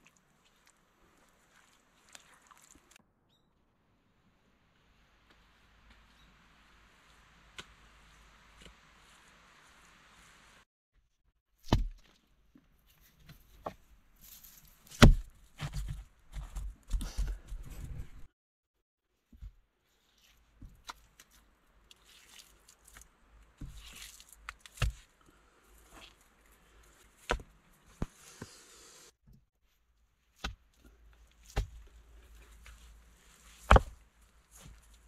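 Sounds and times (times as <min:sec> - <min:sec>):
mud squelching and rustling: 0:00.0 - 0:03.0, 0:19.8 - 0:28.6, 0:30.3 - 0:35.0
wet mud slaps and knocks: 0:11.6 - 0:12.2, 0:14.9 - 0:17.2, 0:22.0 - 0:25.1, 0:27.2 - 0:28.1, 0:30.4 - 0:30.7, 0:31.4 - 0:31.9, 0:33.6 - 0:34.9.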